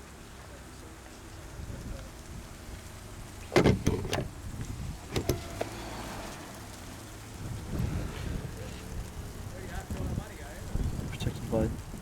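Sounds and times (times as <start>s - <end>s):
car body parts clicking and knocking: 3.4s - 4.4s, 5.0s - 5.8s.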